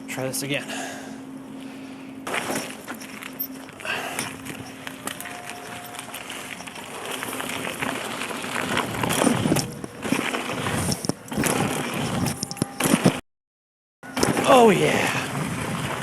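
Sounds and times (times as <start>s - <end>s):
bike clicks and rattles: 2.2s - 13.2s, 14.1s - 16.0s.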